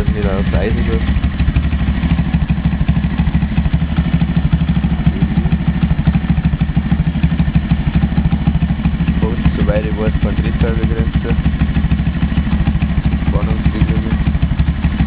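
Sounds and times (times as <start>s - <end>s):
motorbike engine idling: 0.0s - 15.0s.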